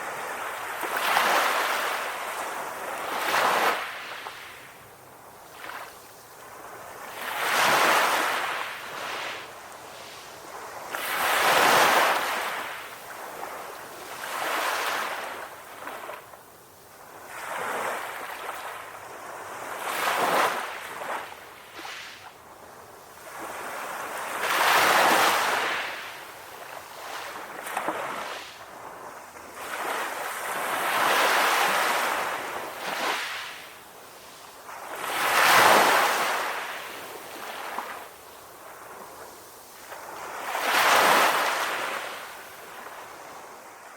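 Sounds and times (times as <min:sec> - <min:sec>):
sea waves breaking on shore: 0:05.5 - 0:16.3, 0:23.2 - 0:43.9.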